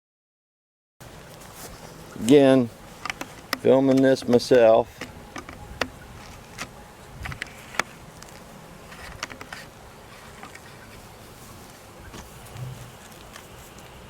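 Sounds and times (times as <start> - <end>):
bees buzzing: 1.0 - 14.0.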